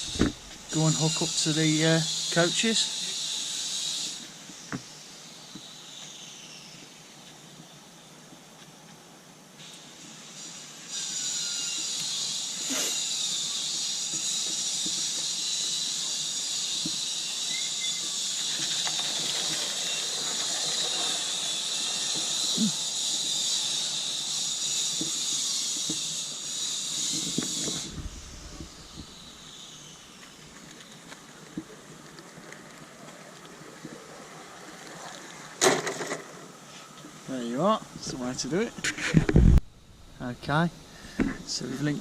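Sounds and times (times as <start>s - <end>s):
steam hissing: 0.0s - 7.1s, 9.6s - 32.1s.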